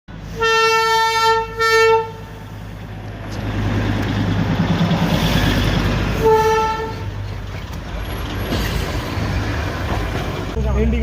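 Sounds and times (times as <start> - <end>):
train horn blast: 0.3 - 2.4, 6.2 - 7.2.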